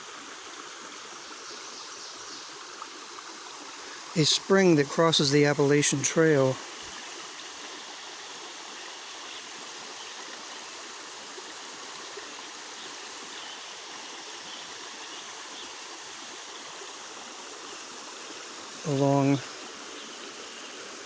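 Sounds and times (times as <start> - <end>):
stream flowing: 0.0 - 21.0.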